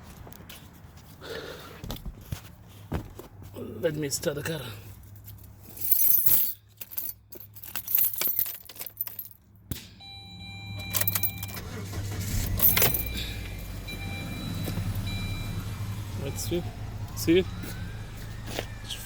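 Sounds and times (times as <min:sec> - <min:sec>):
car keys jangling: 0:05.0 - 0:09.5, 0:10.7 - 0:15.2
car engine starting and idling: 0:10.0 - 0:19.0.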